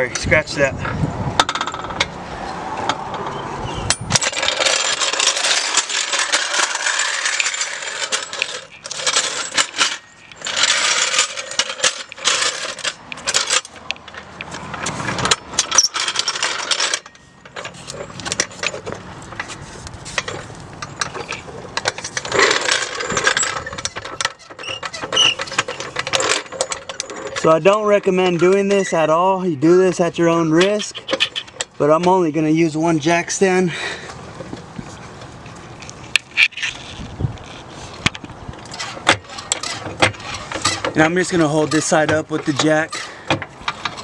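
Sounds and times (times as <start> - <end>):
metal scraping: 2.8 - 29.1
metallic clinks and rattles: 3.9 - 28.9.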